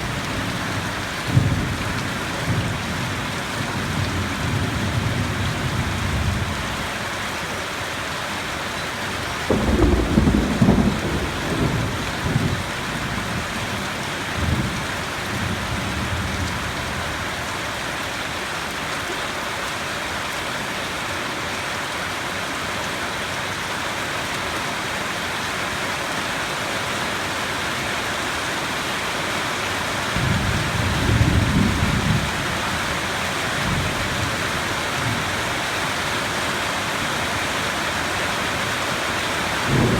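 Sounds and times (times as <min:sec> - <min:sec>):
heavy rain hissing: 0:00.0 - 0:22.8, 0:23.7 - 0:39.9
thunder rumbling: 0:09.4 - 0:16.8, 0:30.2 - 0:35.2, 0:39.7 - 0:39.9.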